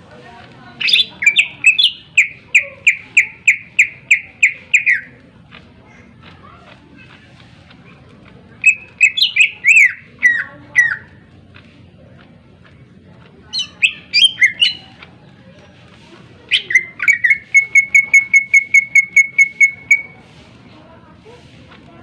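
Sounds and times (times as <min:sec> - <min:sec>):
bird whistling sharp phrases: 0:00.8 - 0:05.1, 0:08.6 - 0:11.1, 0:13.6 - 0:14.8, 0:16.5 - 0:20.2
bird chips: 0:00.8 - 0:11.7, 0:13.4 - 0:20.6.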